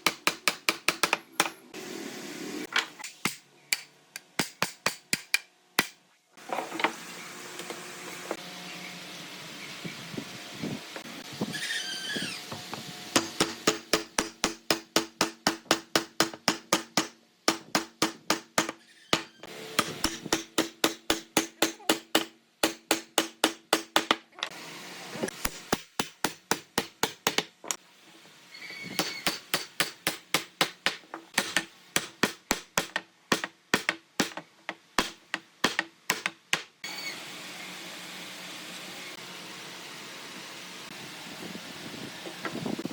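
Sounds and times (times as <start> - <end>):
rapid hammering: 0.0 - 1.6, 3.2 - 6.0, 13.2 - 24.2, 25.4 - 27.5, 29.0 - 36.8.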